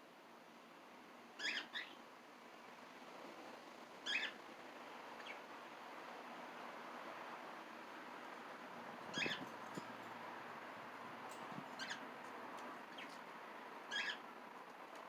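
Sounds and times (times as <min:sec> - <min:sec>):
parrot chirps: 0:01.4 - 0:02.0, 0:04.1 - 0:04.4, 0:09.1 - 0:09.4, 0:13.9 - 0:14.2.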